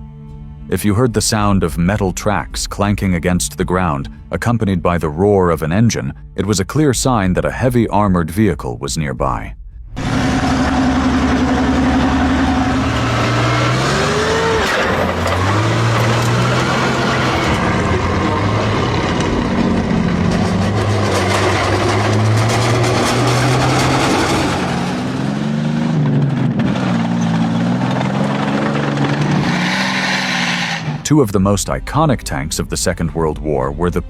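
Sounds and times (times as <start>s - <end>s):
metal tracks clanking: 10.0s - 31.0s
tank engine revving: 10.0s - 31.6s.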